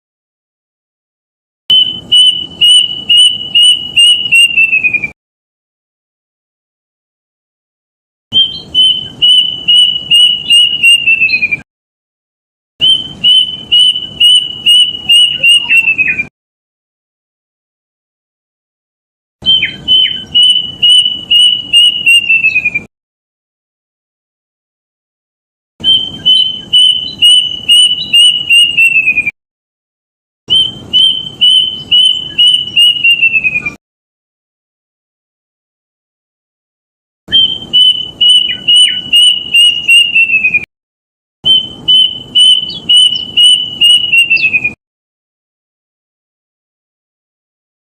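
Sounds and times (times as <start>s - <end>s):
cuckoo whistling: 1.7s - 5.2s, 8.4s - 11.6s, 12.8s - 16.3s, 19.5s - 22.9s, 25.8s - 29.3s, 30.5s - 33.8s, 37.3s - 40.7s, 41.5s - 44.8s.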